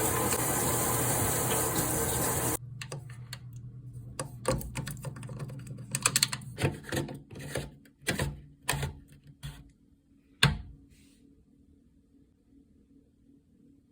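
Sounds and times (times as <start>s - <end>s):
plastic parts clicking: 4.4s - 9.0s.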